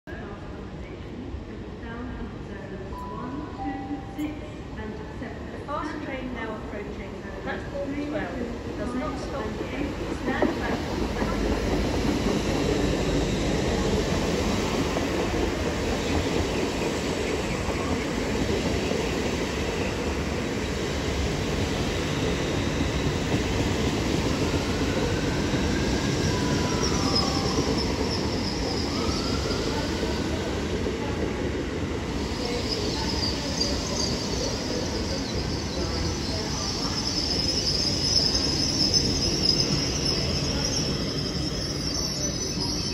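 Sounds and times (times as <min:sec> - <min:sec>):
rumble of wheels on rail: 0:00.1 - 0:42.9
high brake squeal: 0:25.4 - 0:30.4, 0:32.3 - 0:42.9.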